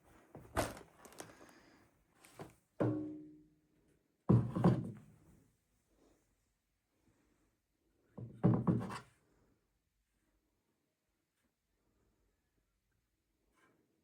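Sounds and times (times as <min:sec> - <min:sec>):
objects knocking and thunking: 0:00.4 - 0:01.6.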